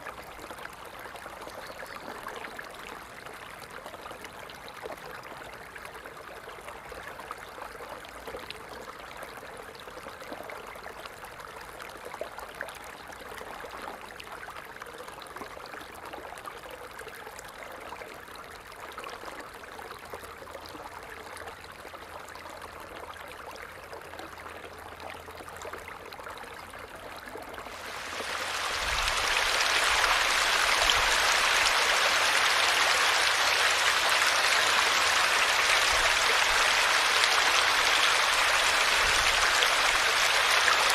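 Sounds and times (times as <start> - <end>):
water trickling and dripping: 20.0 - 40.9
heavy falling water rushing: 27.7 - 40.9.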